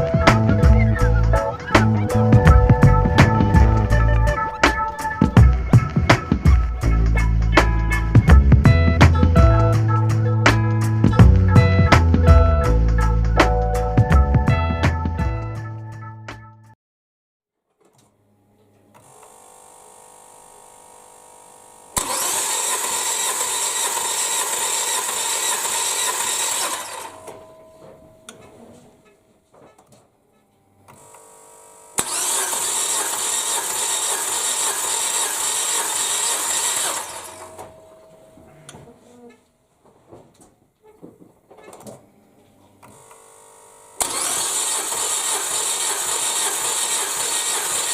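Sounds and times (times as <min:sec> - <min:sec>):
car engine cranking: 0:22.0 - 0:27.7, 0:32.0 - 0:38.0, 0:44.0 - 0:47.9.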